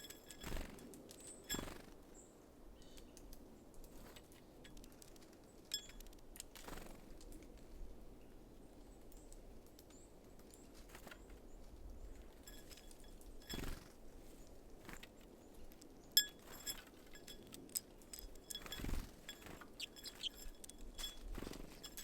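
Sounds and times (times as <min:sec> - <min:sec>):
songbirds high call notes: 0:19.3 - 0:21.1.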